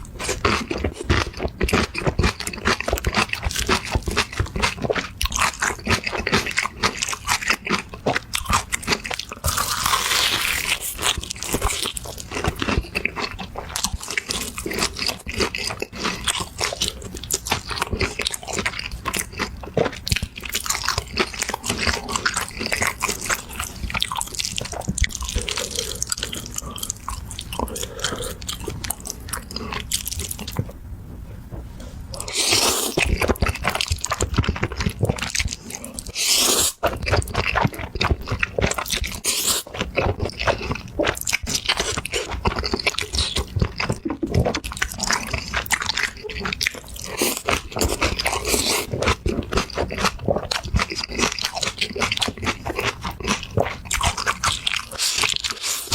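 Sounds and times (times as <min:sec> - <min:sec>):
crunchy chewing: 0:00.0 - 0:55.9.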